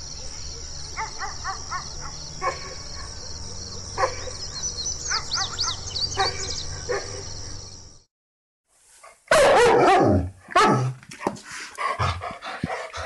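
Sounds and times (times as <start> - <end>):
small birds chirping: 0.0 - 8.1
dog barking: 1.0 - 3.2, 4.0 - 4.4, 5.1 - 7.2, 9.3 - 11.0.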